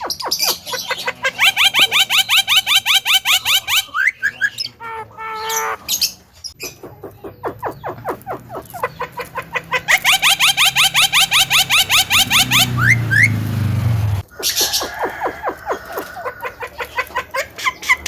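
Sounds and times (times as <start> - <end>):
myna bird chirping: 0.0 - 18.0.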